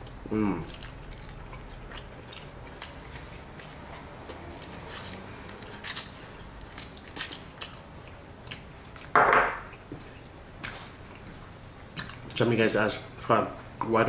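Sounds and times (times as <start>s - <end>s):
chewing and biting: 0.0s - 9.1s, 11.9s - 12.5s.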